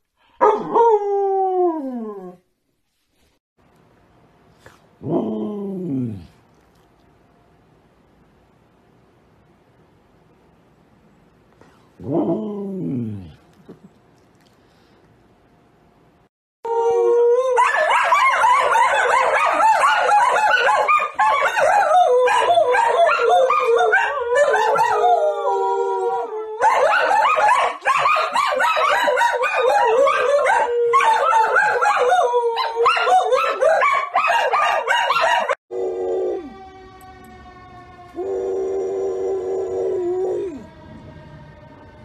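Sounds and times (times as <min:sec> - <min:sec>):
dogs howling together: 0:16.7 - 0:37.0, 0:38.1 - 0:41.0.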